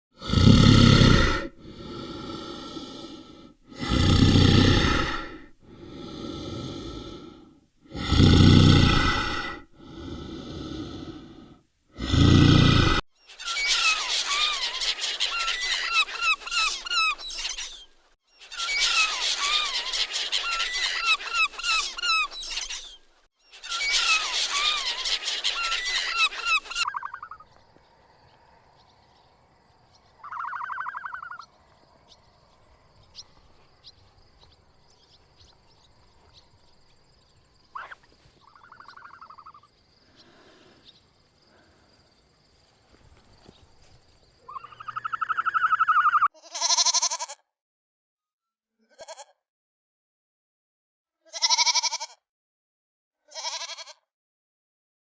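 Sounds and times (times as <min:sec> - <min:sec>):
short animal calls: 0:12.1 - 0:27.6, 0:30.2 - 0:31.6, 0:37.7 - 0:40.8, 0:43.5 - 0:47.4
birds chirping: 0:12.3 - 0:46.3.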